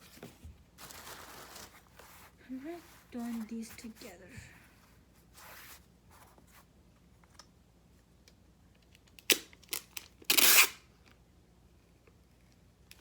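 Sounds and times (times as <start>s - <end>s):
short loud tearing: 9.3s - 10.8s.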